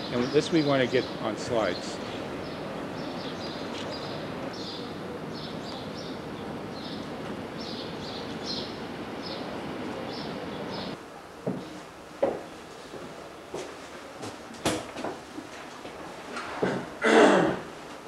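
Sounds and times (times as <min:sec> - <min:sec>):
birds chirping: 0:00.0 - 0:11.0
outdoor background noise: 0:00.0 - 0:18.0.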